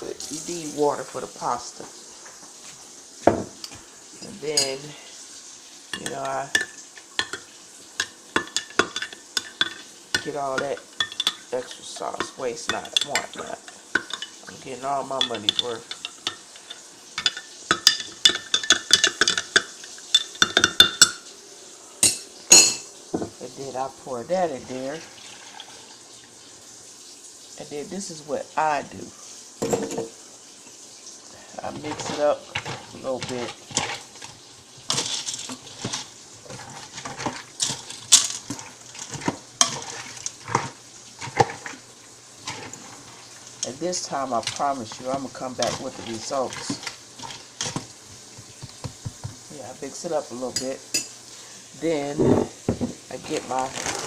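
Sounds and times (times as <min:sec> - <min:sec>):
spoon scraping and clinking pot: 0:03.4 - 0:04.9, 0:05.9 - 0:21.2, 0:22.0 - 0:23.4, 0:31.6 - 0:41.8, 0:42.4 - 0:49.3, 0:50.5 - 0:51.2.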